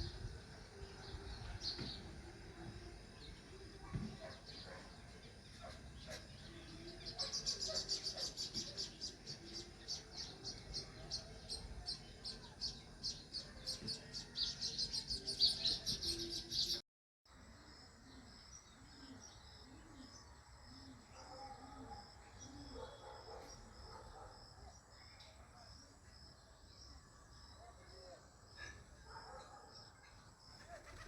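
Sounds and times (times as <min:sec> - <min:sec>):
sparrows chirping: 0:00.0 - 0:16.8.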